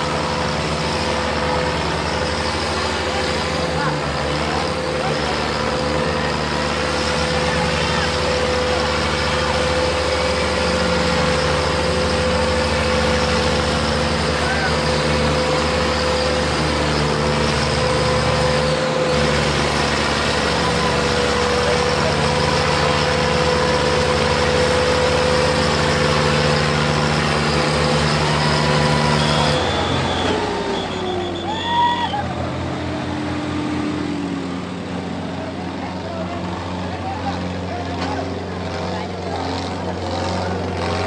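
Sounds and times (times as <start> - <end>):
diesel tractor engines under load: 0.0 - 41.0
rising and falling shouts or whistles: 27.6 - 32.5.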